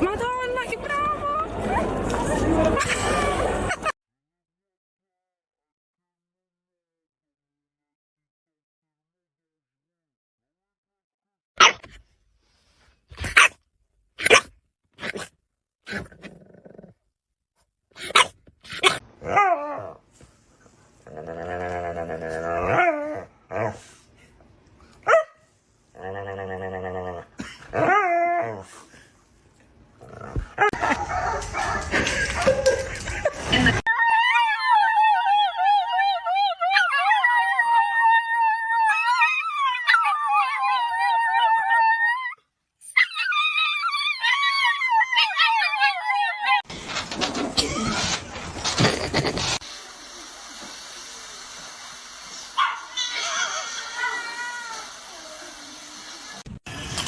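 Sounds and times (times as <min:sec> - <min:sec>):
dog growling low: 0:15.9 - 0:17.0, 0:20.9 - 0:23.9, 0:25.9 - 0:28.9, 0:30.0 - 0:30.8
dog barking: 0:25.0 - 0:25.4, 0:52.6 - 0:53.4.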